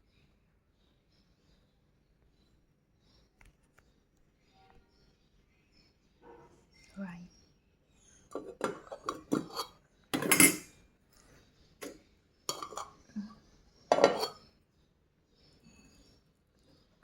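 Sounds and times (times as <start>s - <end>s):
cutlery and dishes clattering: 8.3s - 10.8s, 11.8s - 13.0s, 13.9s - 14.5s.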